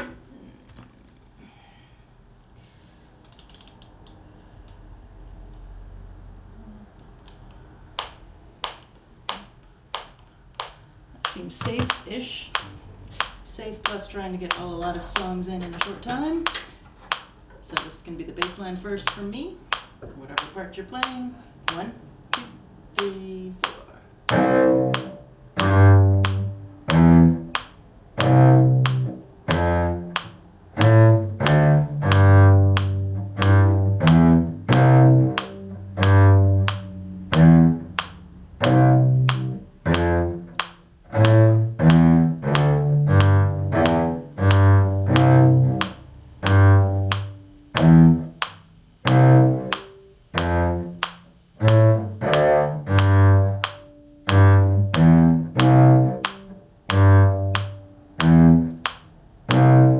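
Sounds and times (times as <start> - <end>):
bowed string bass notes: 20.1 - 59.9.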